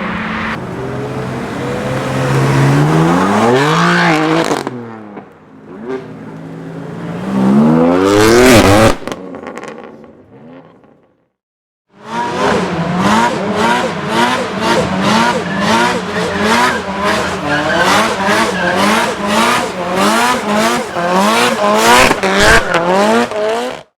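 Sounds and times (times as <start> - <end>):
car engine at high revs: 0.0 - 10.9, 11.9 - 23.9
tires squealing: 12.0 - 23.8.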